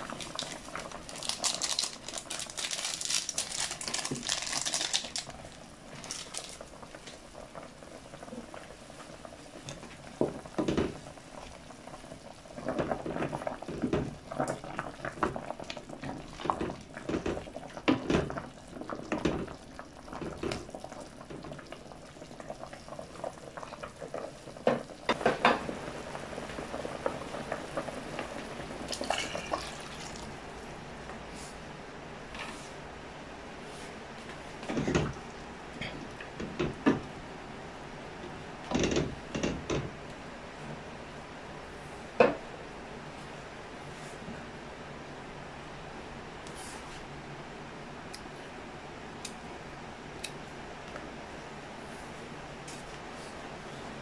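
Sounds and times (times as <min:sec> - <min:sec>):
foil sachets crinkling: 0:00.0 - 0:06.7
water pouring: 0:00.0 - 0:07.5, 0:28.8 - 0:30.4
pot of broth boiling: 0:00.0 - 0:45.8.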